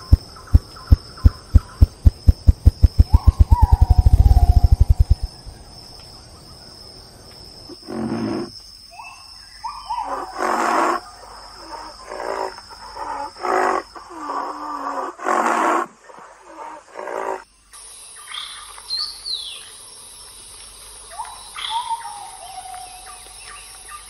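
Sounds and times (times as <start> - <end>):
wild animal calling: 0.0 - 5.3.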